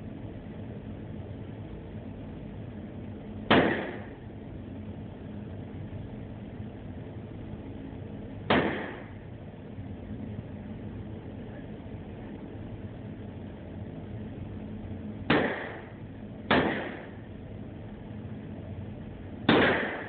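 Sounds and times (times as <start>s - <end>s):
steady low background noise: 0.0s - 20.0s
gunshots: 3.5s - 4.2s, 8.5s - 9.2s, 15.3s - 17.2s, 19.5s - 20.0s.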